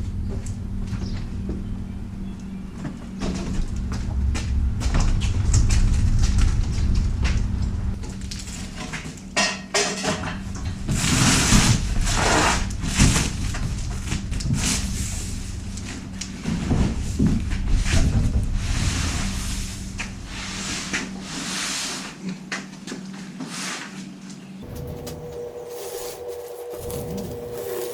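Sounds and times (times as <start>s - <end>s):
cardboard rustling and scraping: 10.9s - 22.2s, 24.6s - 27.9s.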